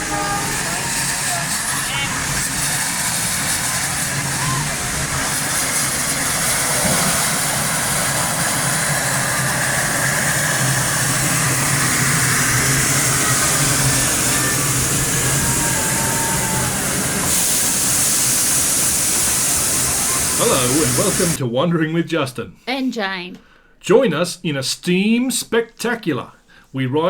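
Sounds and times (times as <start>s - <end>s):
low hum: 0.0s - 21.4s
steam hissing: 0.0s - 21.4s.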